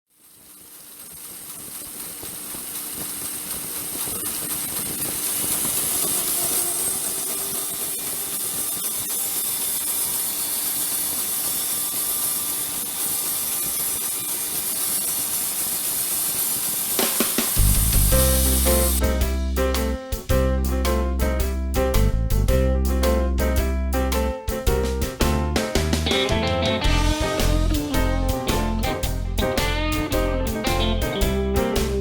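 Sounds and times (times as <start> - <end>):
steady hiss: 14.7 - 19.1.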